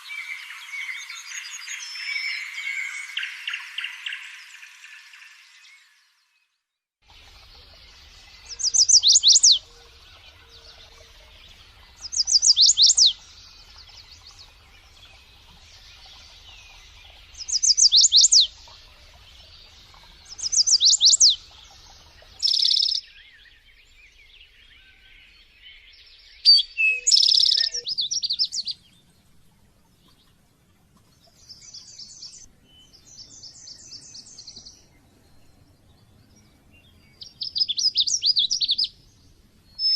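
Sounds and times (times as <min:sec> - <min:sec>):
soft rapid bird trills: 0:07.1 - 0:23.1
songbird whistled phrases: 0:22.4 - 0:23.0, 0:26.4 - 0:28.7.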